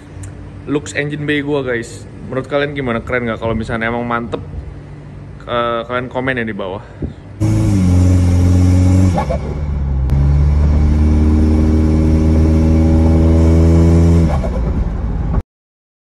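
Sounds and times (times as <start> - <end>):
car engine drone from inside: 7.0 - 15.4.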